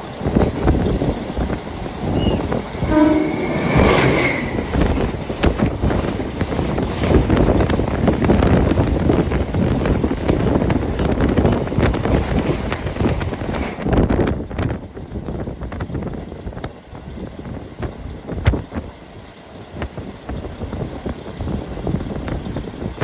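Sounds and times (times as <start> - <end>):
train wheels clattering: 0.0 - 16.6
train horn blast: 2.0 - 5.5.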